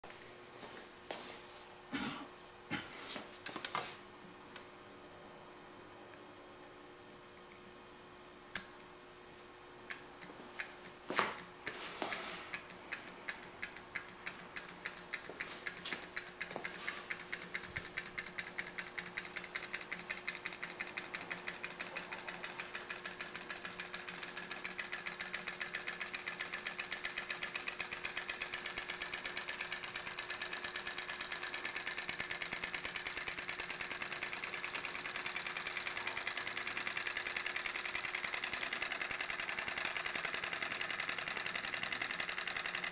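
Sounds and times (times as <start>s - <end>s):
solenoid engine clacking: 11.4s - 42.9s.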